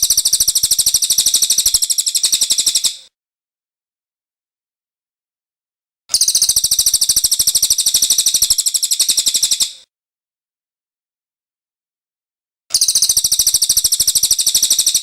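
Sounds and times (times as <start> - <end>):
songbird high rapid trill: 0.0 - 3.1, 6.1 - 9.8, 12.7 - 15.0.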